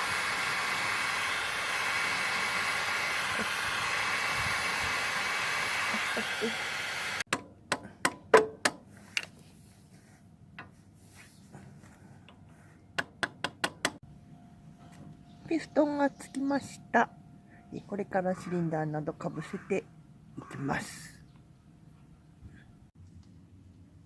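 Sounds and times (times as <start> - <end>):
loud hissing rush: 0.0 - 7.3.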